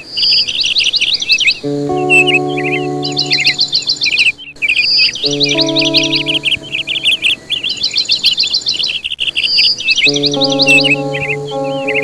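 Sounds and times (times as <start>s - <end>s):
songbirds chirping: 0.0s - 12.0s
held low music chord: 1.6s - 8.2s, 10.1s - 12.0s.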